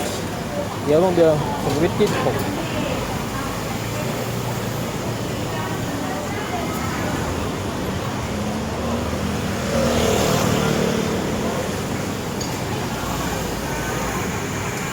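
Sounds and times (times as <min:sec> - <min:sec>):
street traffic noise: 0:00.0 - 0:14.9
vehicle passing: 0:07.0 - 0:12.3.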